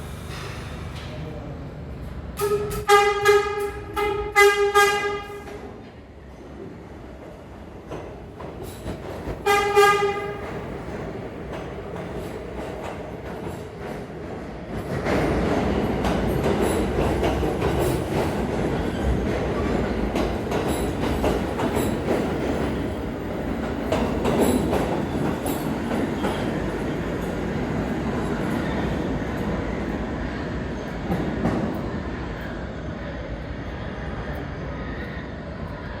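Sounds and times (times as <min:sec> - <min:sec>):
train wheels clattering on rails: 0:00.0 - 0:36.0
subway train horn: 0:02.3 - 0:05.8, 0:09.4 - 0:10.7.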